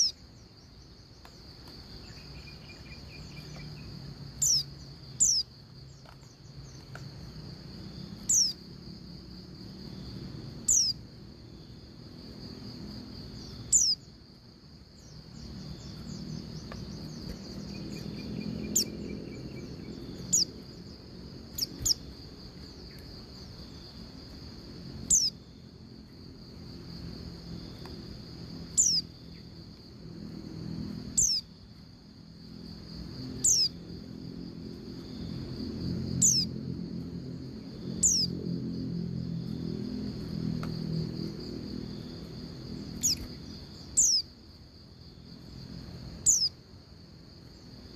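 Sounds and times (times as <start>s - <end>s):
high cricket-like trill: 0.0s - 47.9s
bird calling high slurred notes: 2.0s - 5.5s, 8.2s - 8.6s, 10.7s - 11.0s, 13.5s - 14.1s, 15.0s - 20.6s, 21.5s - 22.1s, 25.1s - 25.4s, 28.7s - 29.1s, 31.2s - 31.5s, 36.2s - 36.5s, 38.0s - 38.3s, 43.0s - 43.3s, 44.0s - 44.3s.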